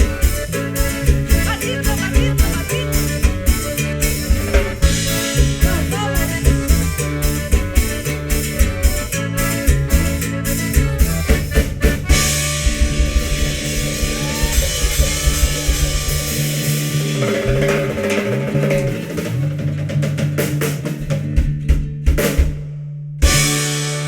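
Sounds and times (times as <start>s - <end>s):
accordion: 0.0s - 17.5s
drum kit: 0.0s - 24.0s
electric bass: 0.0s - 24.0s
guitar: 0.0s - 24.0s.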